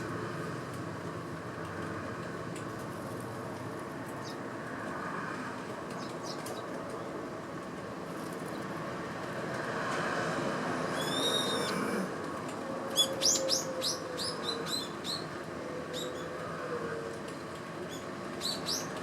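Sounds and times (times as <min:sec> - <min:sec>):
steady background hum: 0:00.0 - 0:19.0
sparrows chirping: 0:06.0 - 0:06.7, 0:13.0 - 0:15.3, 0:17.9 - 0:19.0.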